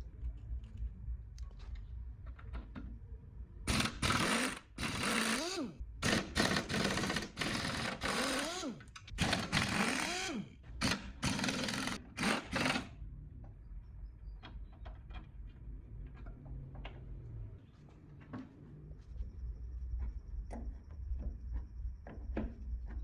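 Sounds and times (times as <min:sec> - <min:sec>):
power tool running: 0:03.7 - 0:12.9.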